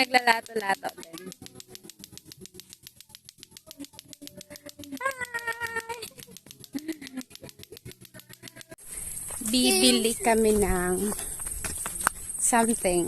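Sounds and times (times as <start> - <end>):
clacker balls clacking rapidly: 0.0 - 8.8.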